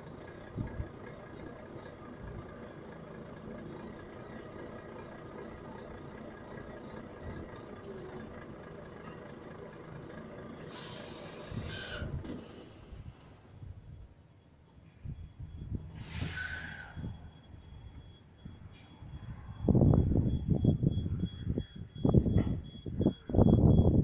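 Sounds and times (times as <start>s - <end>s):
diesel truck engine idling: 0.0s - 14.5s
air hissing: 15.9s - 17.0s.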